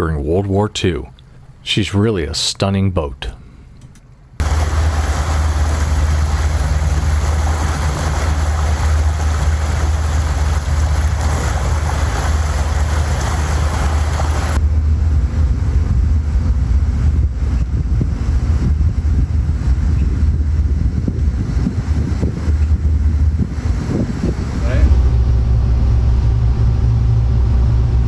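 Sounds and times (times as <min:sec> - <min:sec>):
motorboat engine drone: 0:04.2 - 0:28.0
wind buffeting microphone: 0:04.4 - 0:26.8
water rushing past hull: 0:04.4 - 0:26.9.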